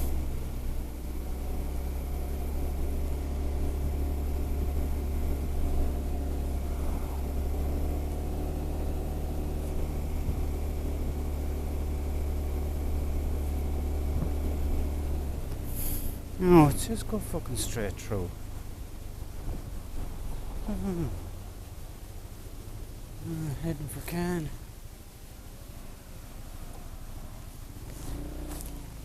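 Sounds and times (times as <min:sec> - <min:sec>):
scooter engine droning: 0:00.0 - 0:21.5, 0:27.7 - 0:29.0.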